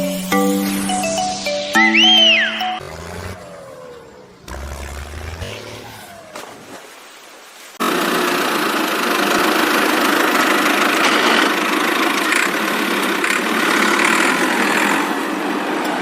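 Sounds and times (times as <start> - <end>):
motor running: 2.8 - 6.5.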